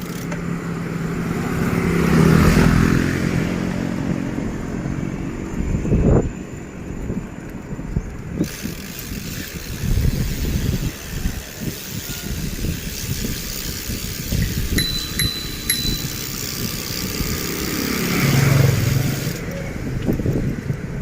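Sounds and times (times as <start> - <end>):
faint vehicle sound: 0.0 - 21.0
wind and road noise rumble: 0.0 - 21.0
brief high tone: 14.8 - 16.5.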